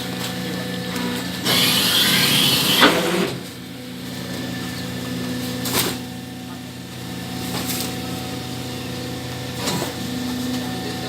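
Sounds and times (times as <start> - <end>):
baling press motor humming: 0.0 - 11.0.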